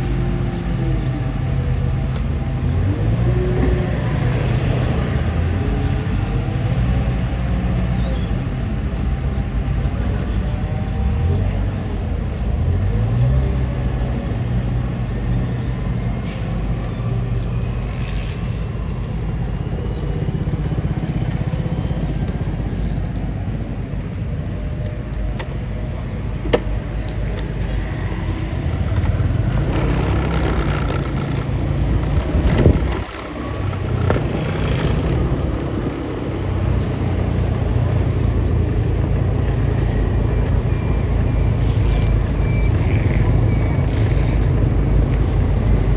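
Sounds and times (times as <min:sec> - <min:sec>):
bulldozer diesel engine revving: 0:00.0 - 0:23.2, 0:26.6 - 0:45.9.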